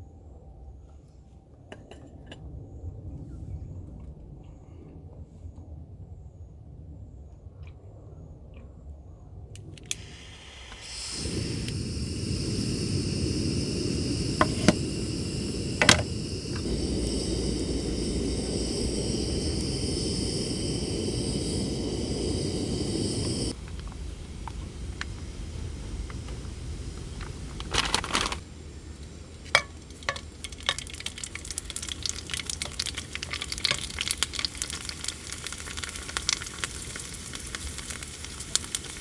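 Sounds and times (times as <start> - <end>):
steady rushing noise: 10.8 - 30.2.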